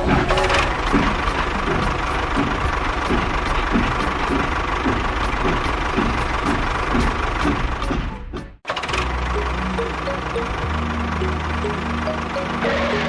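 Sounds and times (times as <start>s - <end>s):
engine at fast idle: 0.0s - 8.0s, 8.7s - 13.0s
regular engine knock: 0.0s - 9.5s.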